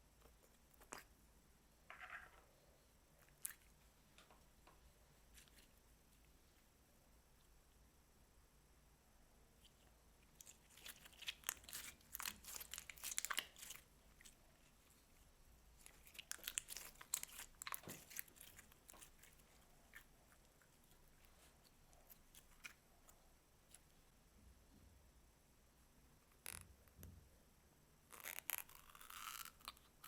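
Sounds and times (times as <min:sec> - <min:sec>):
slime crackling when squeezed: 0:10.4 - 0:14.4, 0:15.8 - 0:19.4.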